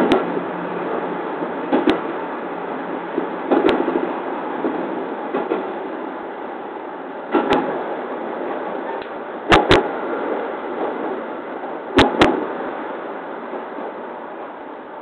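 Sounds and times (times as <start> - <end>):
wheels clicking over rail joints: 0.0 - 2.2, 2.8 - 5.9, 7.3 - 12.7
electric train running rumble: 0.0 - 15.0.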